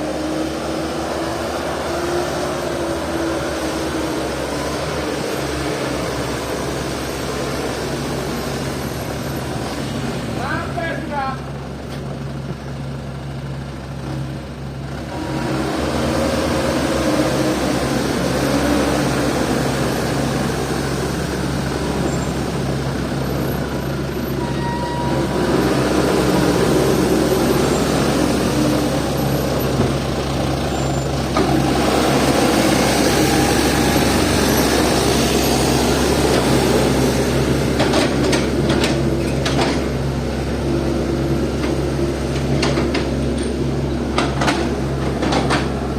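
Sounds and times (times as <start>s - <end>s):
heavy diesel engines under load: 0.0s - 45.9s.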